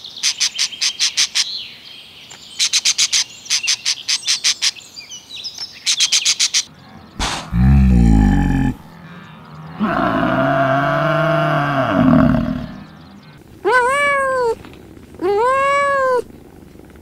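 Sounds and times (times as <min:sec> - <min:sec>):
water buffalo mooing: 0:06.8 - 0:13.4
kitten meowing: 0:13.6 - 0:14.6, 0:15.2 - 0:16.3.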